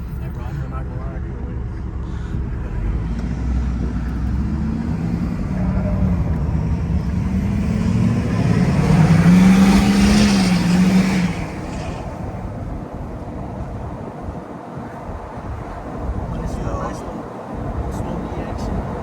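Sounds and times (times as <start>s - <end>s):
diesel truck engine accelerating: 0.0s - 19.0s.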